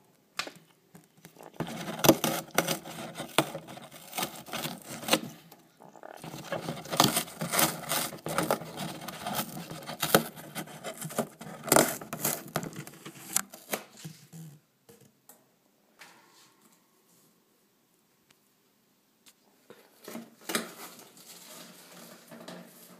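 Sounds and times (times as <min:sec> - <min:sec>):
parrot tearing cardboard: 0:01.3 - 0:14.2.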